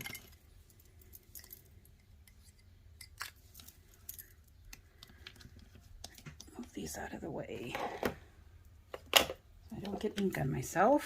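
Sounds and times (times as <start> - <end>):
light clicks and taps of supplies: 0.0 - 6.9.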